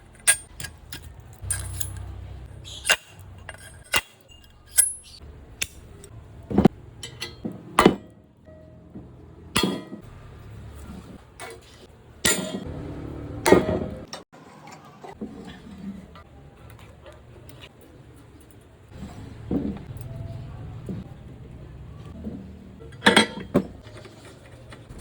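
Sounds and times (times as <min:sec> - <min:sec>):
metal tools clinking and knocking: 0:00.0 - 0:05.2, 0:07.0 - 0:10.0, 0:22.2 - 0:25.0.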